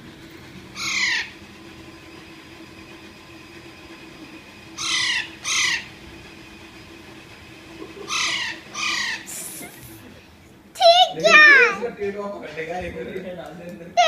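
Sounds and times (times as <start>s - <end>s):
parrot squawking: 0.8s - 1.4s, 4.8s - 5.9s, 8.0s - 10.0s, 10.8s - 11.8s.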